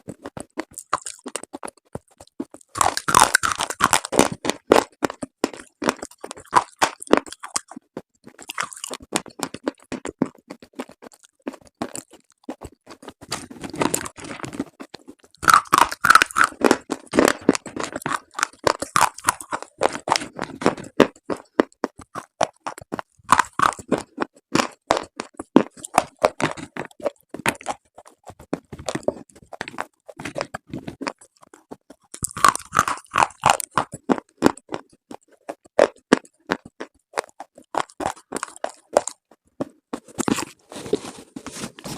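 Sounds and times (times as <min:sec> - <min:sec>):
slate crunching and cracking: 0:00.0 - 0:41.9.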